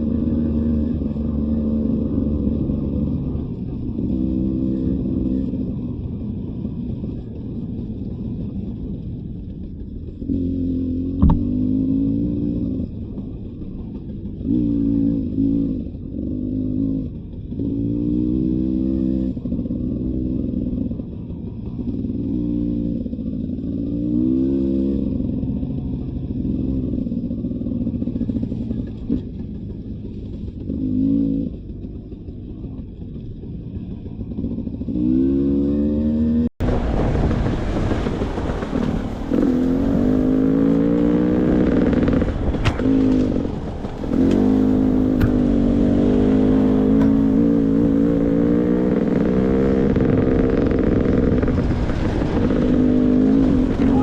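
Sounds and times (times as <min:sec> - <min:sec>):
dirt bike engine revving: 0:00.0 - 0:05.7, 0:10.3 - 0:12.9, 0:34.8 - 0:36.5, 0:38.7 - 0:54.0.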